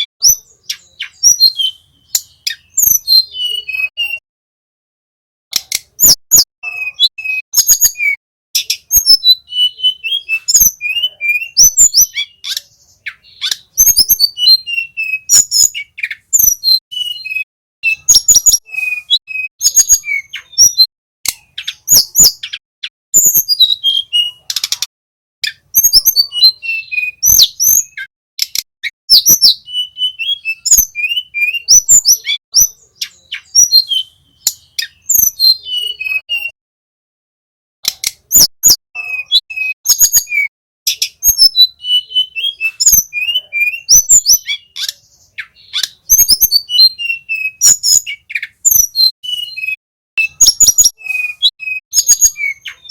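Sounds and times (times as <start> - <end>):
bird singing sharp chirps: 5.8 - 22.6, 23.2 - 36.6, 38.2 - 52.9.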